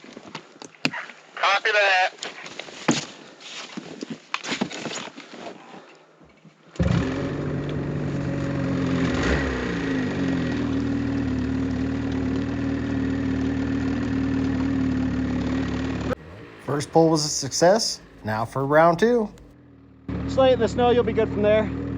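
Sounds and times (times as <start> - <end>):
winch engine running under load: 6.8 - 19.5.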